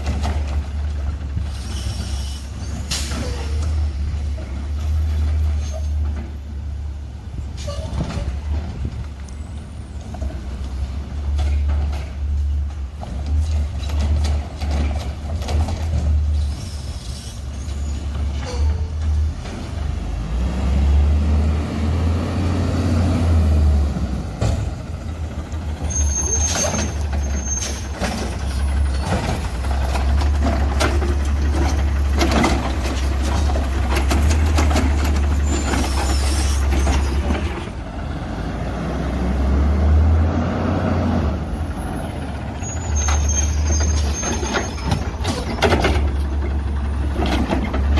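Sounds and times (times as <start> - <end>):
truck knocks and clanks: 0.0 - 6.7, 7.4 - 16.9, 17.7 - 21.5, 23.0 - 38.0, 41.2 - 47.9
garbage truck engine rumble: 0.0 - 47.9
air brakes hissing: 1.4 - 3.7, 16.3 - 18.8, 35.8 - 37.2.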